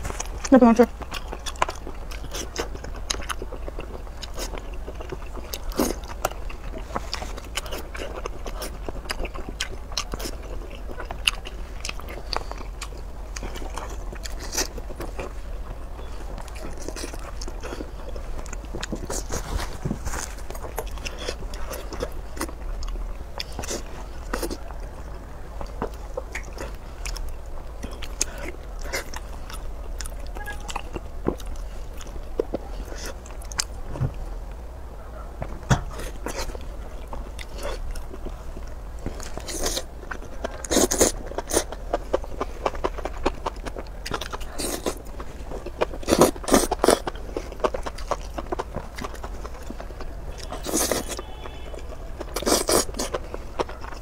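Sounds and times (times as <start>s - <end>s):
wet crunchy chewing: 0.0s - 34.3s, 35.6s - 54.0s.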